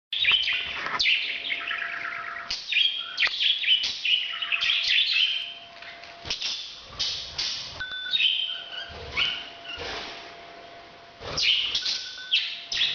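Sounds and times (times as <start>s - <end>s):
parrot chirping and whistling: 0.2s - 5.6s, 7.8s - 10.0s, 11.3s - 12.9s
parrot squawks: 8.1s - 9.9s.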